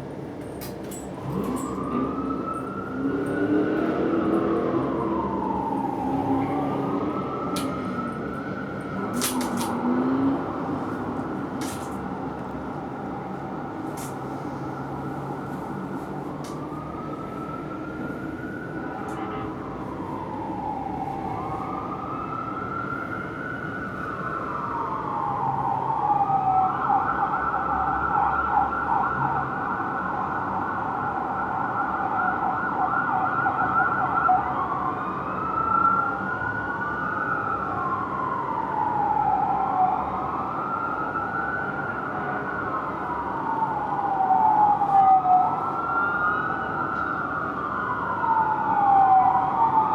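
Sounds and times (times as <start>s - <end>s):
fire truck siren wailing: 0.0s - 49.9s
siren rapid yelp: 38.2s - 49.9s.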